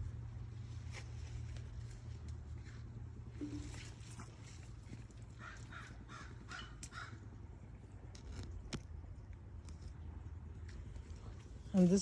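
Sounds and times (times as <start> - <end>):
crow cawing: 5.4 - 7.2.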